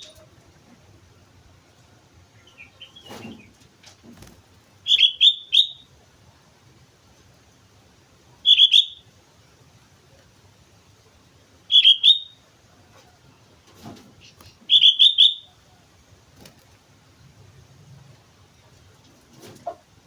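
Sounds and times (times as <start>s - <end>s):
bulbul calling: 4.8s - 5.9s, 8.4s - 9.1s, 11.7s - 12.4s, 14.2s - 15.8s.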